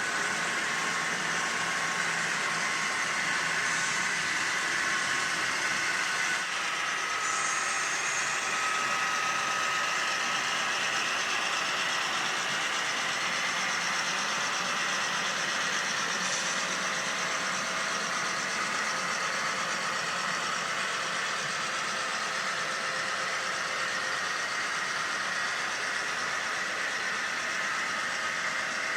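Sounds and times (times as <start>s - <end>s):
model train running: 0.0s - 28.9s.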